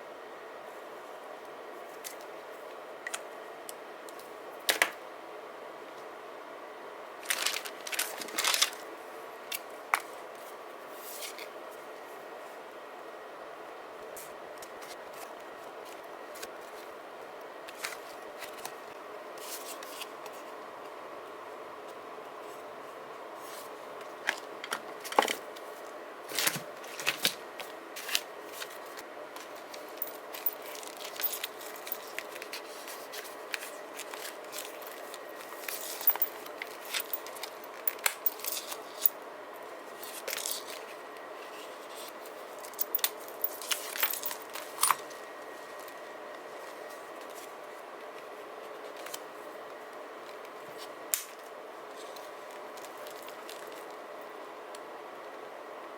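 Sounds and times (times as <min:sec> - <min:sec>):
faint steady hum: 0:00.0 - 0:55.9
paper and stickers handled: 0:07.2 - 0:08.9, 0:17.7 - 0:21.0, 0:22.4 - 0:54.0.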